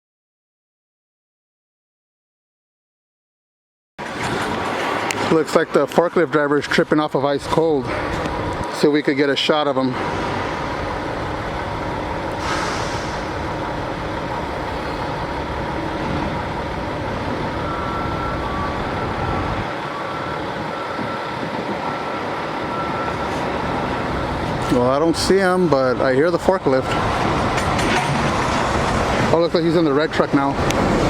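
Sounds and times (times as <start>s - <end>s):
forklift engine running: 9.9s - 29.4s
air hiss: 12.4s - 13.4s
reversing alarm beeping: 14.2s - 26.6s.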